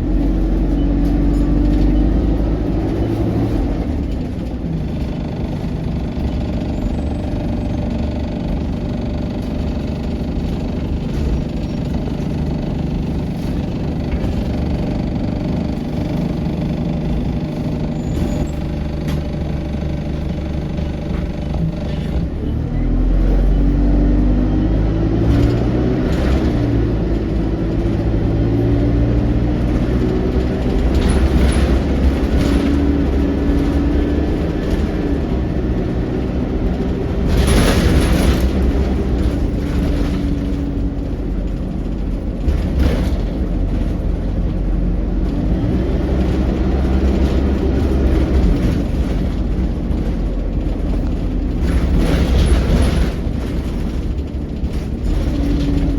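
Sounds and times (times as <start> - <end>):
bus engine rumble and whine: 0.0 - 55.9
loud rattle: 30.3 - 44.4, 46.2 - 55.9.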